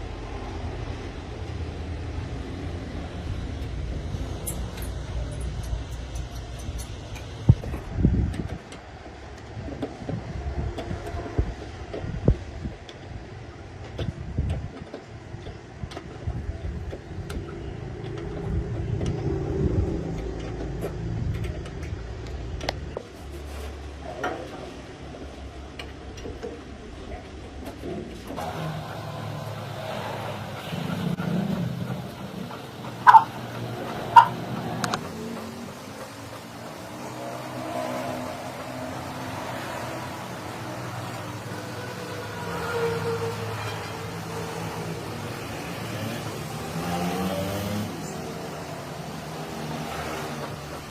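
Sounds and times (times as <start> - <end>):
diesel engine running: 28.4 - 46.8.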